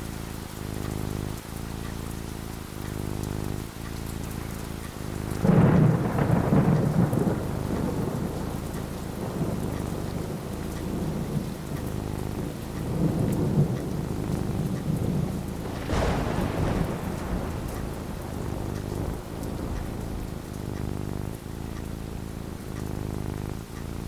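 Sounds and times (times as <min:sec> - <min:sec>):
steady rain falling: 0:00.0 - 0:24.0
thunder rumbling: 0:04.9 - 0:24.0.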